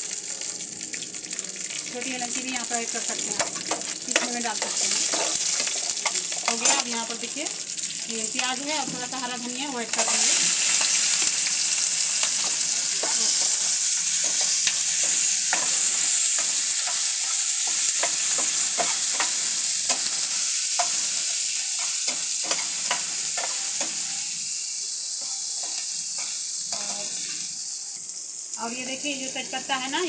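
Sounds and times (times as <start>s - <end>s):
onions sizzling in hot oil: 0.0s - 30.0s
steel spatula scraping and tapping: 12.2s - 17.0s.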